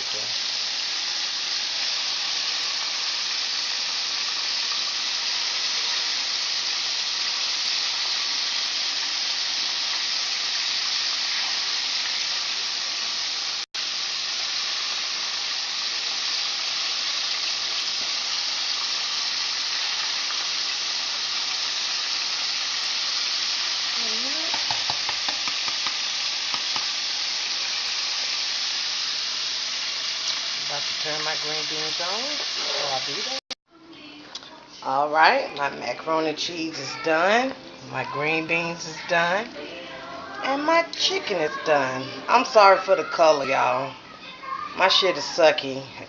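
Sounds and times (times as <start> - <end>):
chicken sizzling in hot oil: 0.0 - 33.6.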